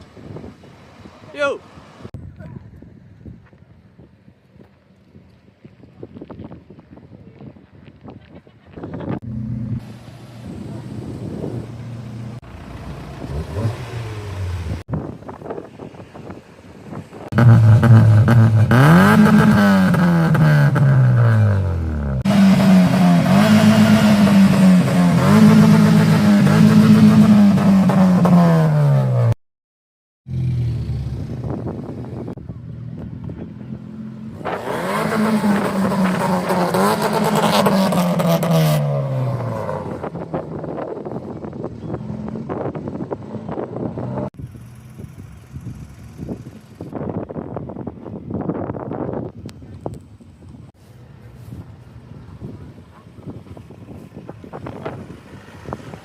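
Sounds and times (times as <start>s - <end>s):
car engine revving: 9.2s - 14.8s, 17.3s - 29.4s, 33.3s - 45.1s.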